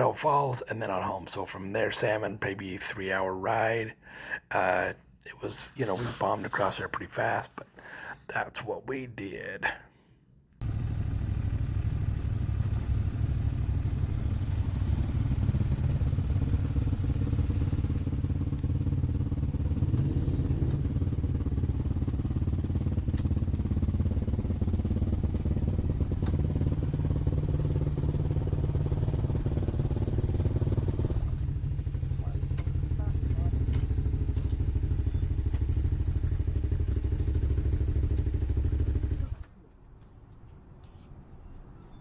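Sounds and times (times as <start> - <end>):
road and wind noise: 10.6 - 33.0
motorcycle engine running: 10.6 - 39.5.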